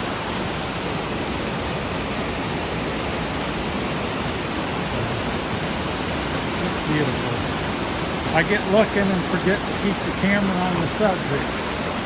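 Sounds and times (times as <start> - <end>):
waterfall pouring: 0.0 - 12.0.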